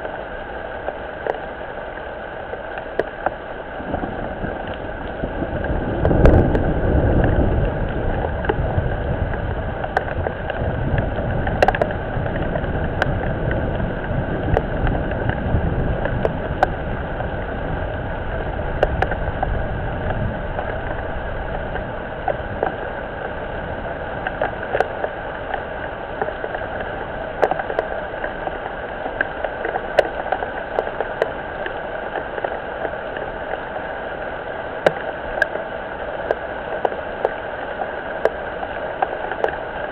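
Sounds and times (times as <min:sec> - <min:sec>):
rain falling on a pond: 0:00.0 - 0:39.9
low rumble: 0:03.6 - 0:28.8
drops ticking: 0:26.2 - 0:33.0.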